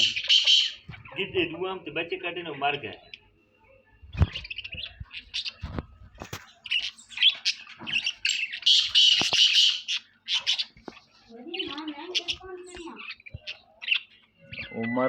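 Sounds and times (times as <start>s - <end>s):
birds chirping and squawking: 0.0s - 15.0s.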